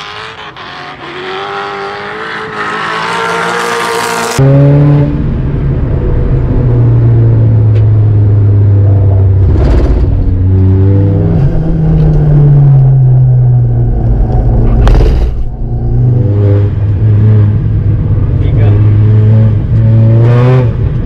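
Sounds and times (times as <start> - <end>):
car engine revving in cabin: 8.4 - 21.0.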